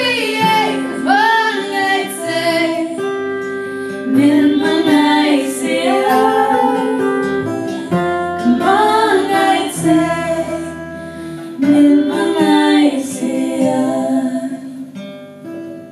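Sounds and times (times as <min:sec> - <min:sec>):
women singing: 0:00.0 - 0:15.0
acoustic guitar: 0:00.0 - 0:15.9.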